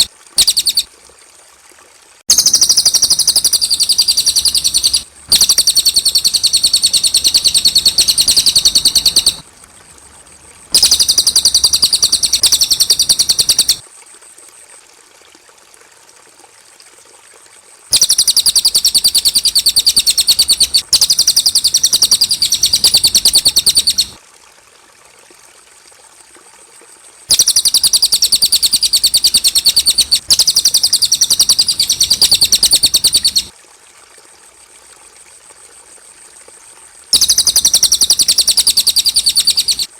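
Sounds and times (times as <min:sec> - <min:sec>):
bird trilling: 0:00.0 - 0:00.9, 0:02.3 - 0:09.4, 0:10.7 - 0:13.8, 0:17.9 - 0:24.2, 0:27.3 - 0:33.5, 0:37.2 - 0:39.9.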